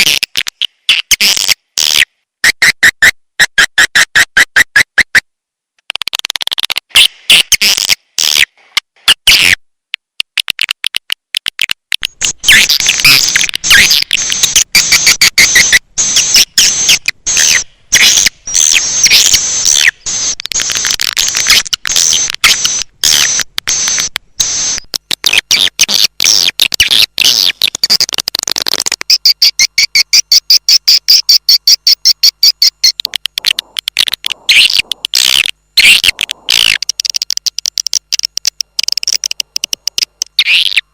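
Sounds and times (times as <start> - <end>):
swiftlets twittering and chirping: 32.2 - 36.9.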